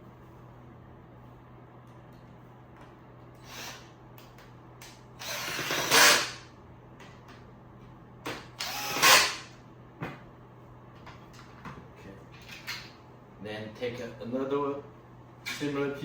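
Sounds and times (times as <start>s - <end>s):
power drill driving screws: 3.4s - 3.9s, 5.2s - 6.4s, 8.6s - 9.5s.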